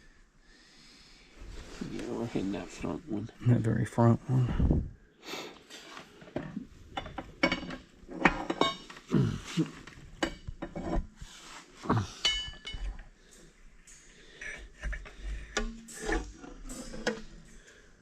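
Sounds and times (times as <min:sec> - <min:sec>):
metal parts clinking and knocking: 0:07.0 - 0:09.0, 0:12.2 - 0:17.6.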